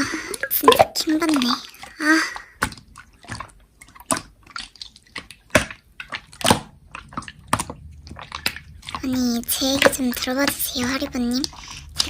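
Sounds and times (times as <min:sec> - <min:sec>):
slime squeezed and poked: 0:02.6 - 0:12.0.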